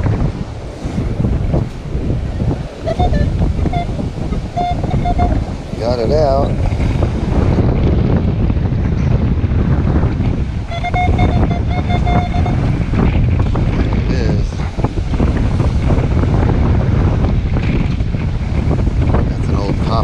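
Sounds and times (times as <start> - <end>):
surf: 0.0 - 20.0
wind buffeting microphone: 0.0 - 20.0
metal detector tone: 2.9 - 3.9, 10.7 - 12.7.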